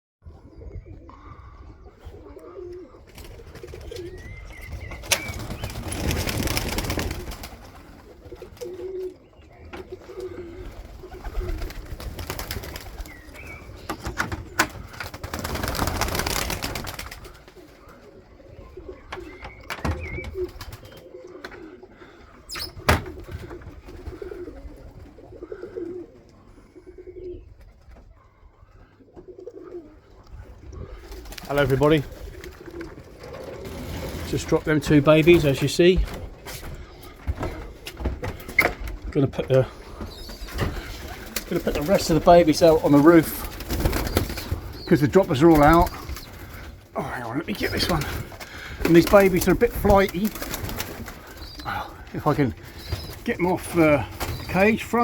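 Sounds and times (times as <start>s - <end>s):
pigeons cooing: 0.3s - 55.0s
wings flapping: 3.0s - 9.2s, 9.8s - 18.2s, 19.0s - 21.8s, 30.9s - 55.0s.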